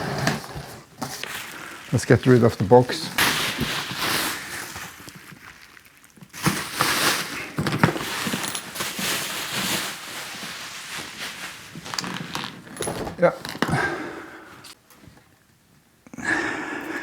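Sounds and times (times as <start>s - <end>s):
cardboard rustling and scraping: 0.0s - 5.4s, 6.4s - 13.7s.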